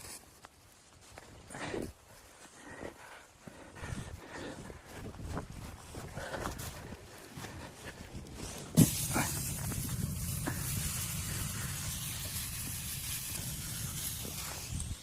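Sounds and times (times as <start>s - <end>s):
steady hissing noise: 8.5s - 15.0s.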